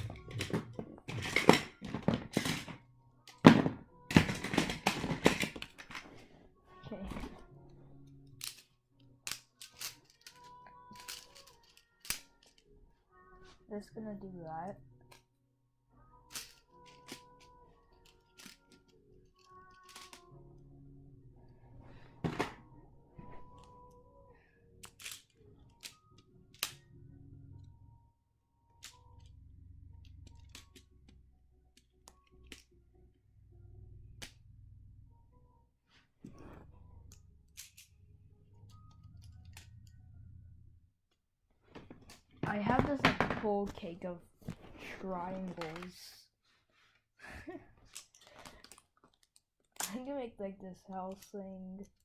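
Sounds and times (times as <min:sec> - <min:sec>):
faint music: 0:00.0 - 0:41.0, 0:41.6 - 0:52.0
plastic tiles clicking together: 0:08.4 - 0:12.6, 0:16.3 - 0:20.3, 0:24.8 - 0:26.8, 0:30.2 - 0:32.7, 0:37.1 - 0:37.9
plastic tiles snapping together: 0:19.4 - 0:20.3, 0:24.8 - 0:26.8.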